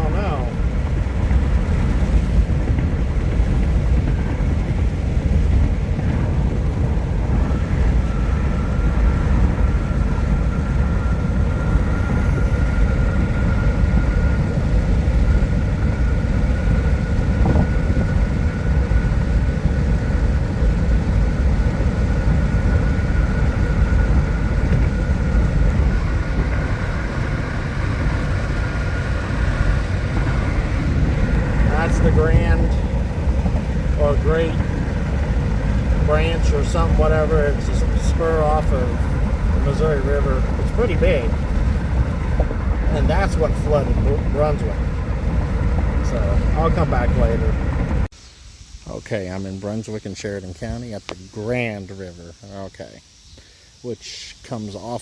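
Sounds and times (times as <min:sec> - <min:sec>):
car road and engine rumble: 0:00.0 - 0:53.9
thin steady whine: 0:00.0 - 0:55.0.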